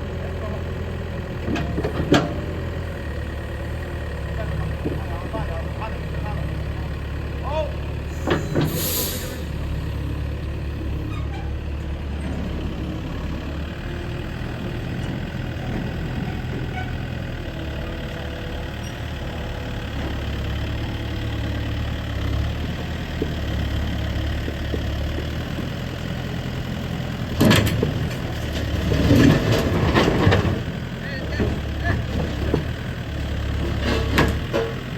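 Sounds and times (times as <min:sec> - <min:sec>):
excavator diesel engine idling: 0:00.0 - 0:34.9
brief hiss: 0:08.6 - 0:09.5.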